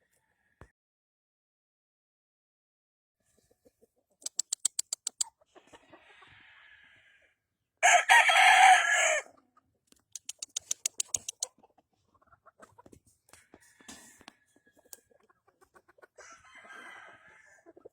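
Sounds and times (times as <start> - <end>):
quick sharp clicks: 4.2 - 5.3, 10.0 - 11.5
rooster crowing: 7.8 - 9.3, 16.2 - 17.6.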